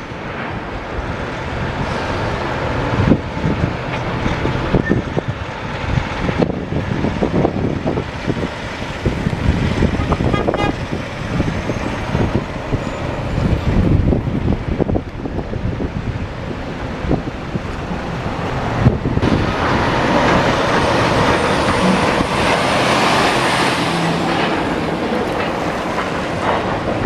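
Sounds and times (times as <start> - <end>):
heavy equipment running: 0.0 - 27.0.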